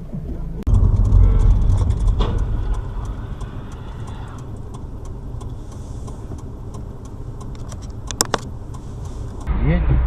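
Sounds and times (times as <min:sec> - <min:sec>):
car engine drone inside cabin: 0:00.0 - 0:10.0
faint clicks: 0:00.7 - 0:09.5.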